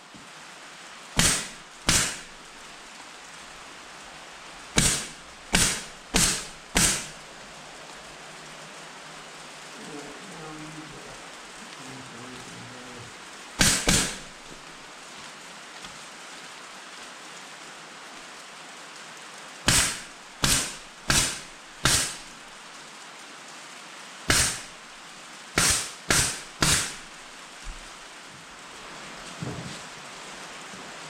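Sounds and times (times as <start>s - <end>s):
steady air hiss: 0.2s - 31.0s
air stapler firing: 1.2s - 2.3s, 4.8s - 7.2s, 13.6s - 14.4s, 19.7s - 22.3s, 24.3s - 24.7s, 25.6s - 27.2s.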